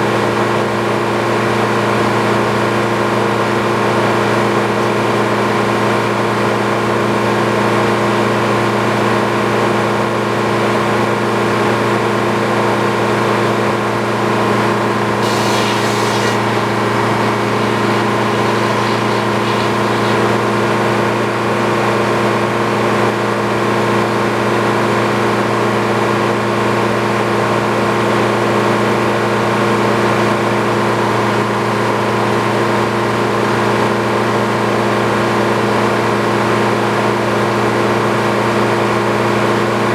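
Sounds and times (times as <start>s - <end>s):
brief hiss: 15.2s - 20.5s
engine running steadily: 15.2s - 20.8s.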